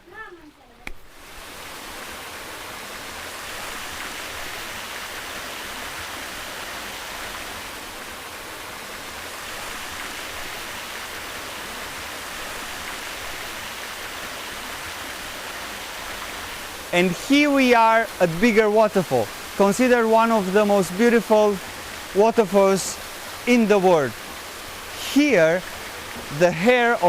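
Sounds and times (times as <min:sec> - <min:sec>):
rushing water: 0:00.0 - 0:27.0.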